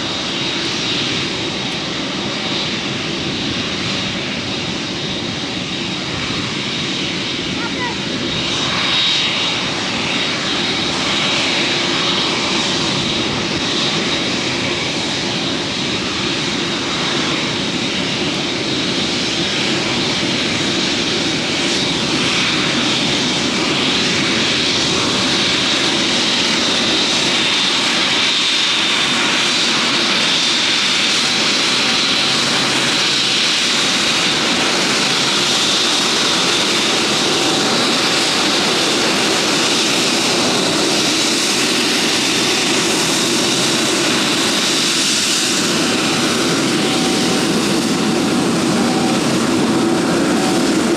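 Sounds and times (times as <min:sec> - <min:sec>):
jet engines running: 0:00.0 - 0:50.9
high engine whine: 0:30.8 - 0:50.9.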